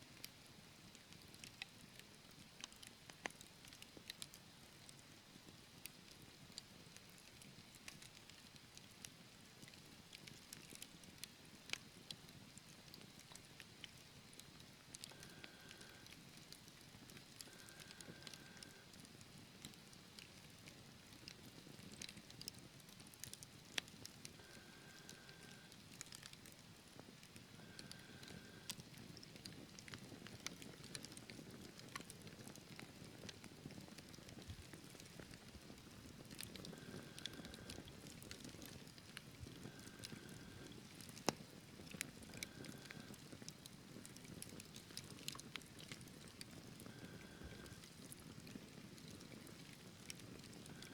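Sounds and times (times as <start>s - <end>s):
fire crackling and popping: 0.2s - 50.9s
low rumble of flames: 14.4s - 50.9s.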